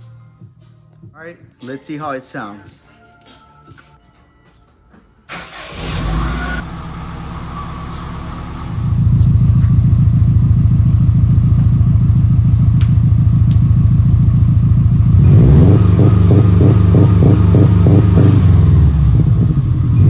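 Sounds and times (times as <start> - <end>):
car exhaust rumbling: 6.6 - 20.0.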